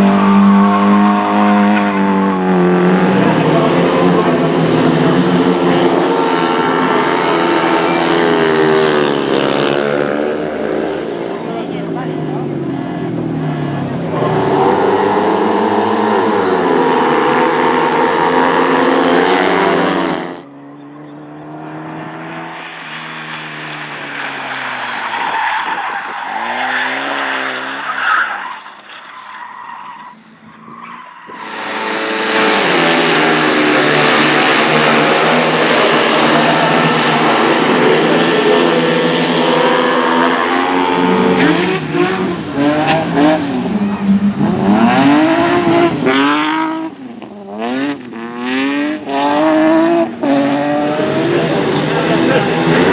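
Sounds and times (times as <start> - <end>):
race car engines revving: 0.0 - 52.9
tyre squeal and skidding: 11.0 - 38.0.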